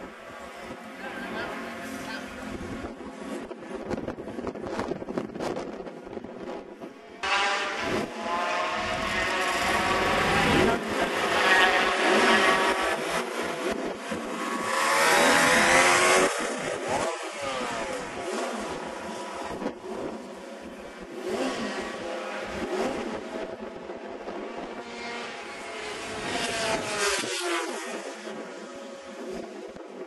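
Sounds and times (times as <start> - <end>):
racing motorcycles passing: 6.4 - 30.0.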